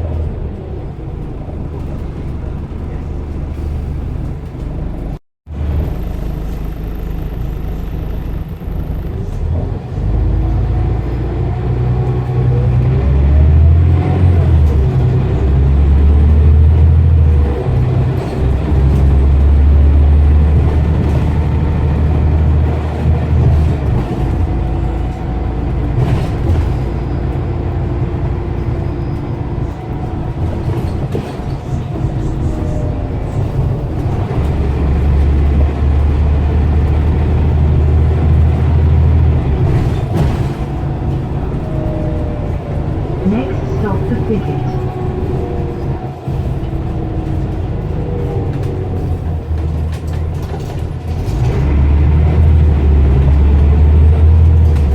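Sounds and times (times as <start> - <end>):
bus engine accelerating: 0.0 - 54.9.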